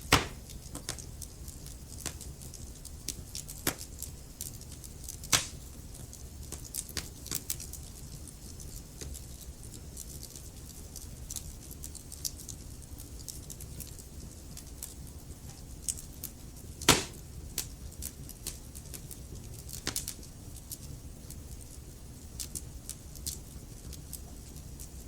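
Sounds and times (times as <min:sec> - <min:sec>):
fire pops and ticks: 0:00.0 - 0:25.0
low rumble of flames: 0:00.0 - 0:25.0.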